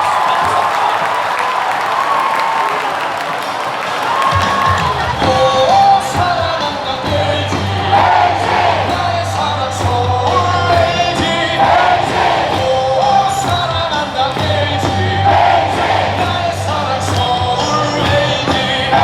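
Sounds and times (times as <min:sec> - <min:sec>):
fans whooping and yelling: 0:00.0 - 0:06.9
amplified music with steady beat: 0:04.8 - 0:19.0
crowd singing in unison: 0:05.1 - 0:19.0.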